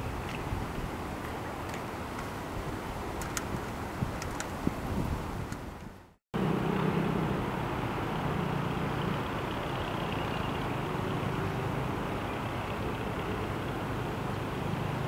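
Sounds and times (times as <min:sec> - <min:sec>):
low engine hum: 0:06.4 - 0:15.0.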